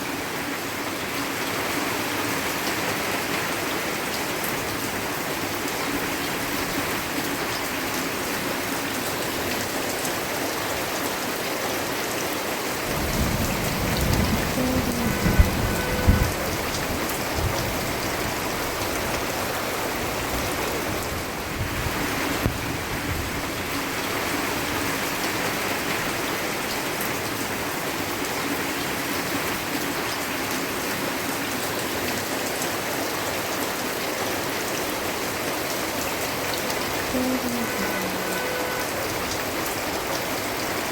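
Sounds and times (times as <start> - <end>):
steady rain pattering: 0.0 - 40.9
thunder rumbling and cracking: 12.9 - 19.2.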